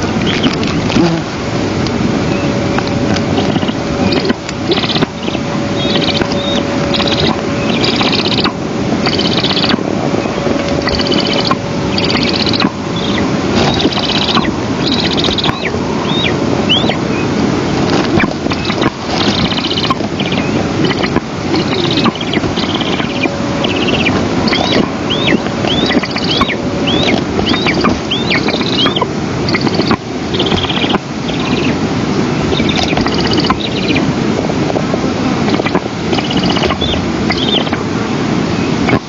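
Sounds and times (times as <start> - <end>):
wind rushing over microphone: 0.0 - 39.0
buzzy high bird chatter: 3.2 - 17.3, 17.9 - 31.8, 32.5 - 34.1, 35.5 - 37.8.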